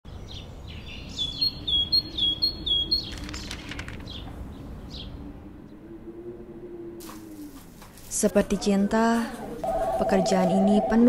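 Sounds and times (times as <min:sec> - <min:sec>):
small bird chirping: 0:00.1 - 0:05.2.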